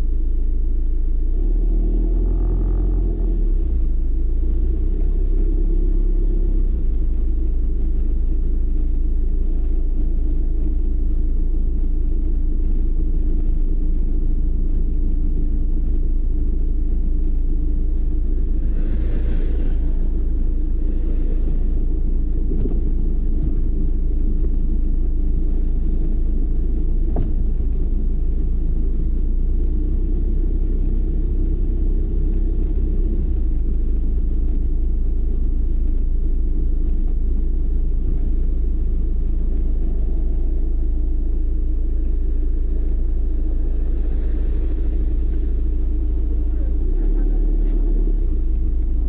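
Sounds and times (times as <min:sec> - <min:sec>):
car engine and road noise: 0:00.0 - 0:49.0
steady hum: 0:00.0 - 0:49.0
brief hiss: 0:18.6 - 0:21.7, 0:43.4 - 0:47.4.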